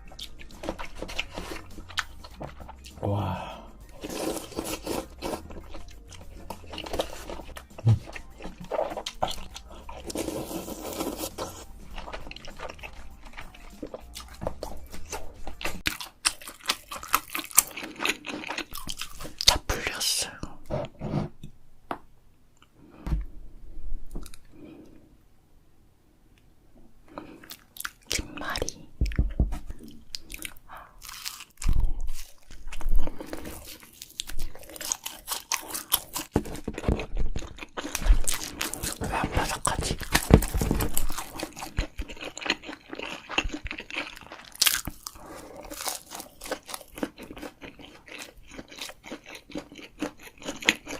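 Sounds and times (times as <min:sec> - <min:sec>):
food crunching: 0:00.0 - 0:03.0, 0:03.9 - 0:19.7, 0:27.1 - 0:50.9
person chewing food: 0:00.0 - 0:19.7, 0:24.1 - 0:25.0, 0:27.1 - 0:50.9
wet mouth sounds: 0:06.1 - 0:15.9.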